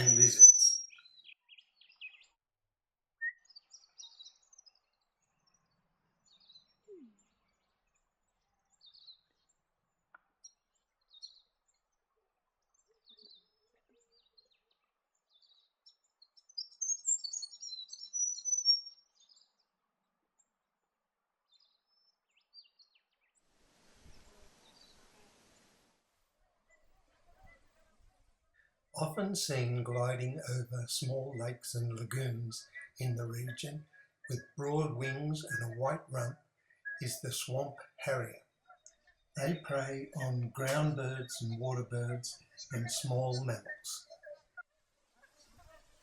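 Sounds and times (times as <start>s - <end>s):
bird chattering: 0.0s - 0.9s
birds chirping: 0.0s - 2.3s, 23.9s - 25.7s, 28.5s - 44.4s.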